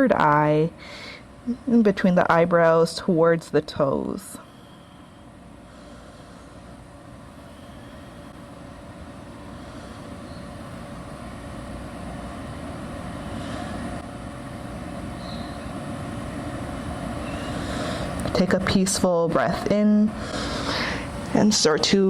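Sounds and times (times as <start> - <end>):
high bird chirps: 15.2 - 15.8.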